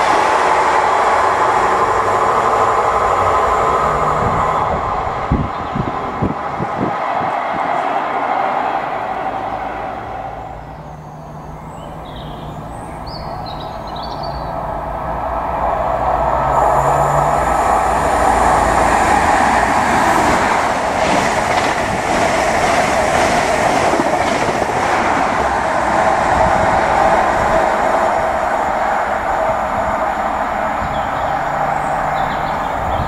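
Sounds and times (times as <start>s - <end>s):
train passing at speed: 0.0s - 33.0s.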